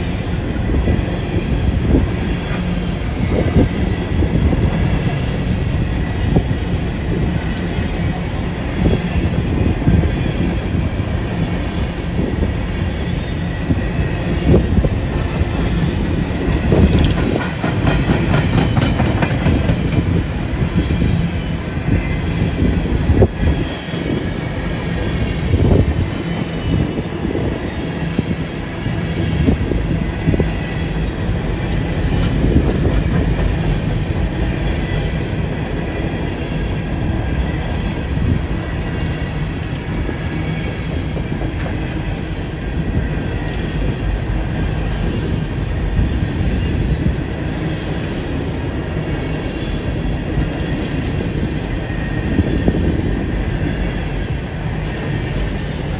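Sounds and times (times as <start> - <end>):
train wheels rumbling on rail: 0.0 - 55.9
clacks over rail joints: 15.1 - 20.4, 32.0 - 34.7.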